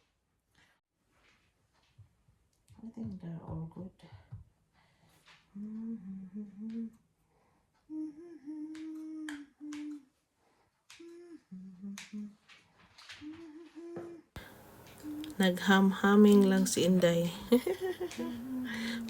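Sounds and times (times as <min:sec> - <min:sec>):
woman humming: 0:05.5 - 0:07.0, 0:07.9 - 0:10.1, 0:11.0 - 0:12.4, 0:13.2 - 0:19.0.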